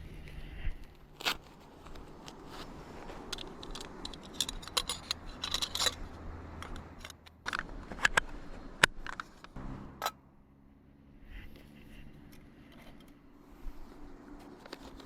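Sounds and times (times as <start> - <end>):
low steady hum: 0.0 - 15.0
gear clicking and clinking: 1.1 - 10.2.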